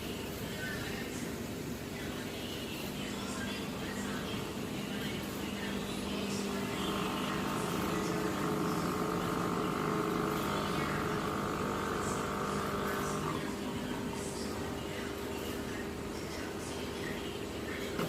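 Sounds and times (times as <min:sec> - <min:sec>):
small engine running: 0:06.4 - 0:13.5.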